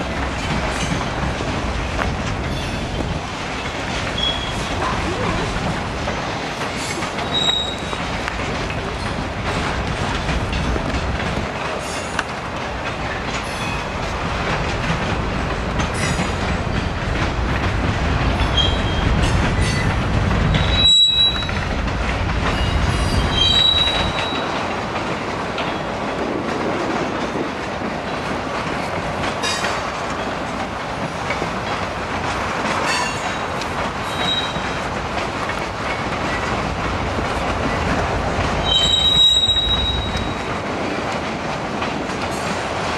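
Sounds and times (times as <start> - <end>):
freight train cars rumbling: 0.0 - 42.9
high-pitched wheel squeals: 7.3 - 7.9, 20.6 - 21.6, 23.3 - 24.4, 38.6 - 40.4.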